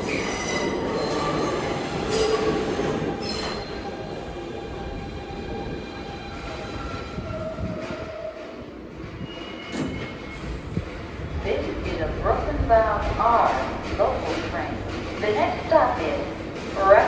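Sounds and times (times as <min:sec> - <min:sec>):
train wheels squealing on rails: 0:00.0 - 0:08.5, 0:09.1 - 0:11.2
subway train rumble: 0:00.0 - 0:17.0.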